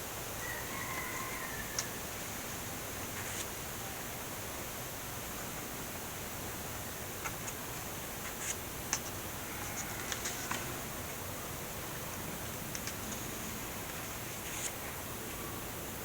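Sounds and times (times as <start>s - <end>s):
steady hiss: 0.0s - 16.0s
book pages turning: 9.7s - 10.7s, 14.4s - 14.8s.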